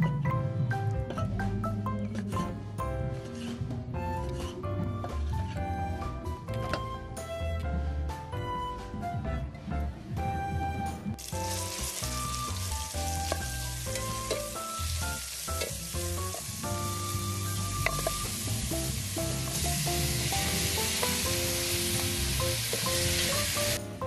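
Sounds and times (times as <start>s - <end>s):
background music: 0.0s - 24.0s
stir-fry sizzling in a pan: 11.2s - 23.8s.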